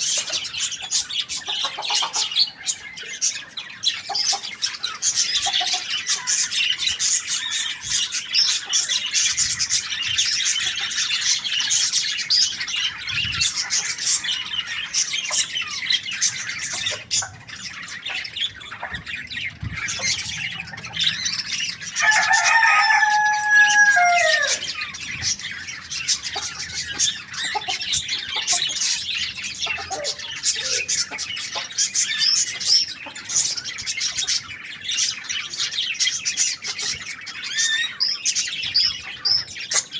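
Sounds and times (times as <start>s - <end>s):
small birds chirping: 0.0s - 39.9s
rooster crowing: 22.0s - 24.8s.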